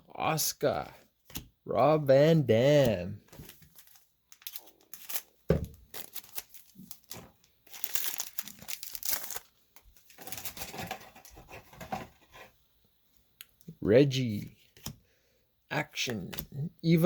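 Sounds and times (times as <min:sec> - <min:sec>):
foil wrapper tearing and crinkling: 0:03.9 - 0:10.9.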